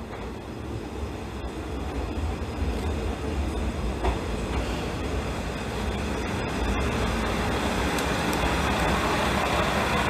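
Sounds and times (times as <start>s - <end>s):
diesel railcar engine and wheels: 0.0s - 10.0s.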